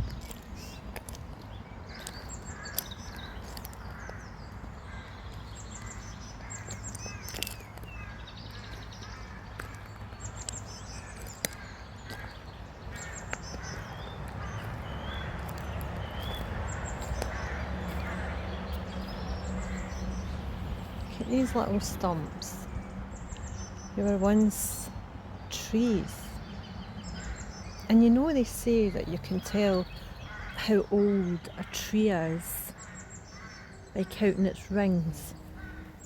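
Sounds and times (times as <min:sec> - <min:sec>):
footsteps crunching on gravel: 0:00.0 - 0:21.1
birds chirping and calling: 0:00.0 - 0:36.0
low traffic rumble: 0:00.0 - 0:36.0.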